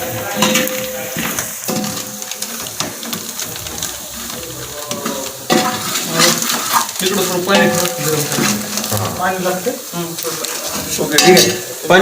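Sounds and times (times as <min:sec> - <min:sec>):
spices sizzling in a pot: 0:00.0 - 0:12.0.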